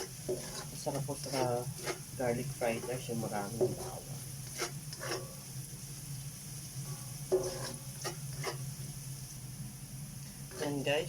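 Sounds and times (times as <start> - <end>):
utensil scraping a pan: 0.0 - 5.5, 6.9 - 8.8, 10.4 - 11.0
garlic sizzling in hot oil: 0.0 - 11.0.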